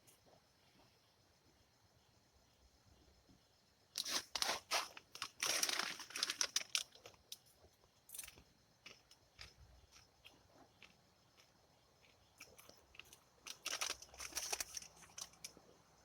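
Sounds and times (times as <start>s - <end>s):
packaging crinkling: 4.0s - 7.2s, 12.4s - 15.6s.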